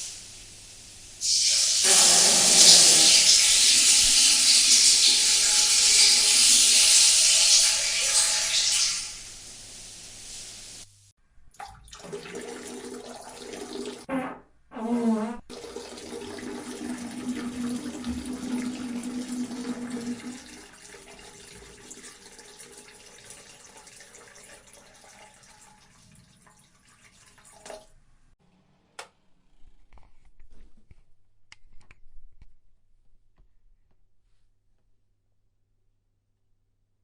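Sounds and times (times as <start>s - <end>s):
hissing watery noise: 0.0s - 10.9s
buzzy fart sounds: 14.0s - 15.5s.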